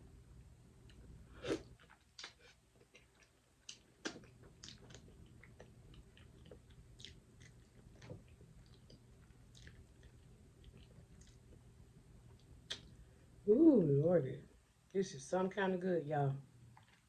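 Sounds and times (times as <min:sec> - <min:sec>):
person chewing food: 0:00.8 - 0:13.0, 0:16.8 - 0:17.0
wet mouth clicks and smacks: 0:02.2 - 0:11.4, 0:12.7 - 0:13.0.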